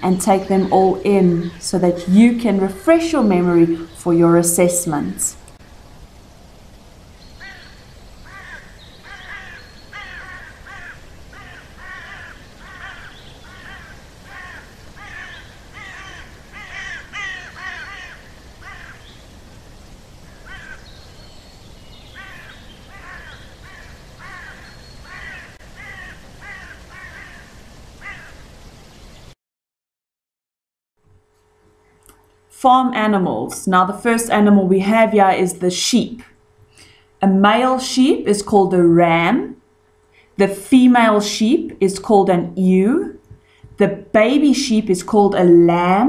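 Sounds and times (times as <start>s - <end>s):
bird calling: 7.2s - 19.2s, 20.2s - 28.4s.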